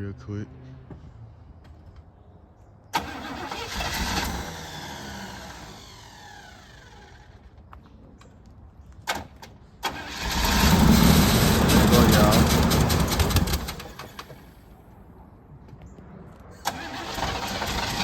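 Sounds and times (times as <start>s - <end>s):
car engine starting and dying: 3.0s - 7.4s, 9.8s - 14.7s, 16.6s - 18.0s.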